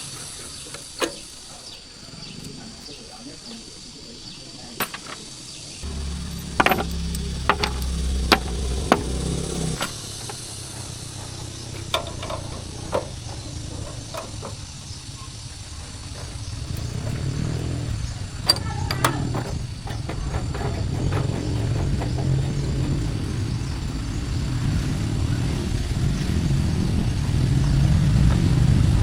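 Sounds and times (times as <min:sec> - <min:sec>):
low engine rumble: 0:00.0 - 0:29.0
sharp metal clicks and knocks: 0:04.8 - 0:23.6
low motor hum: 0:05.8 - 0:29.0.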